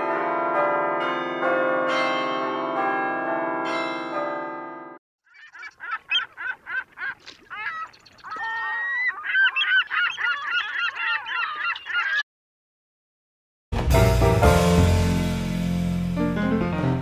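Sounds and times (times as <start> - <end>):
birds calling: 5.2 - 12.3.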